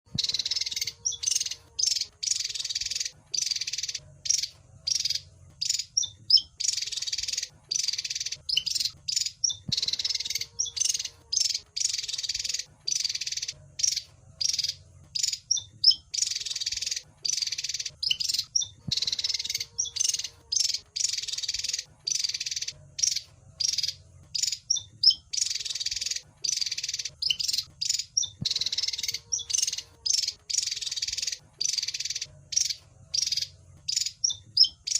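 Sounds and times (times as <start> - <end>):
bird scratchy chattering: 0.1 - 34.9.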